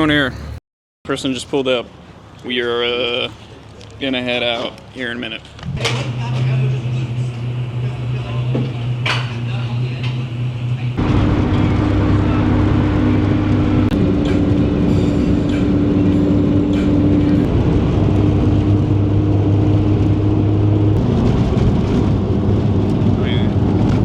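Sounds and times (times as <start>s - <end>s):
road noise: 0.0s - 24.0s
car engine drone: 5.4s - 24.0s.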